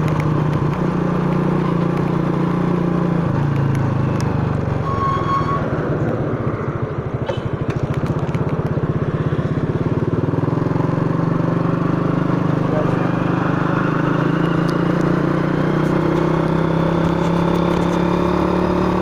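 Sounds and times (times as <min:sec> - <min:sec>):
motorcycle engine idling: 0:05.8 - 0:18.0.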